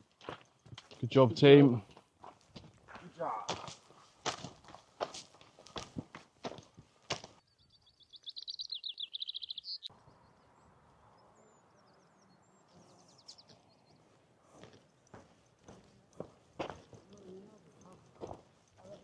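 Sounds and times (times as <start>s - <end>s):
footsteps: 0.0s - 7.4s, 13.4s - 19.0s
songbird trilling: 7.7s - 9.9s.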